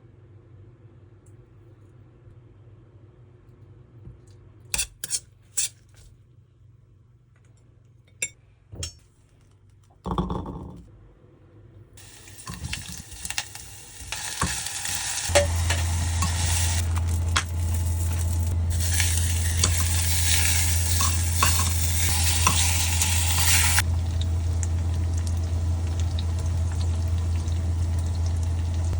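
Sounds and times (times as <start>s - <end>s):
low hum: 10.4s - 28.9s
pork sizzling in a pot: 12.0s - 28.9s.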